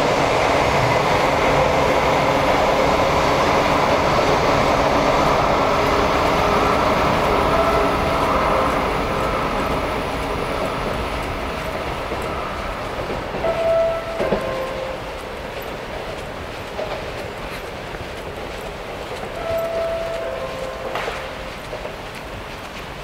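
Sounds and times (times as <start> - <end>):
high-speed train passing: 0.0 - 23.0.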